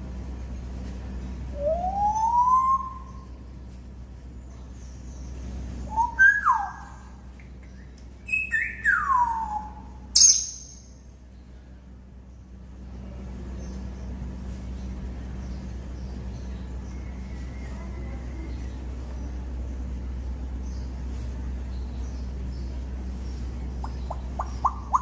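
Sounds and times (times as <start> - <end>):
sharp high-pitched parrot call: 10.2 - 10.8.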